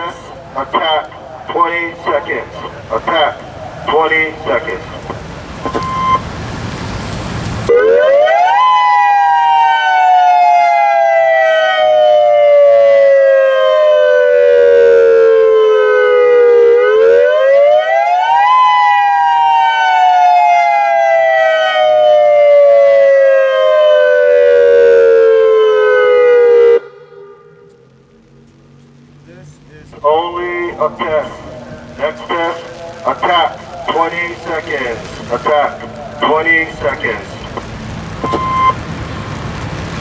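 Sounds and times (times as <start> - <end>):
warning siren rising and falling: 7.6 - 28.2, 30.0 - 40.0.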